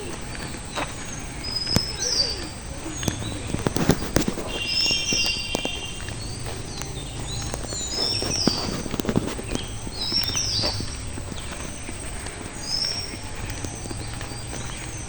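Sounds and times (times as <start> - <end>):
birds whistling calls: 0.0 - 15.0.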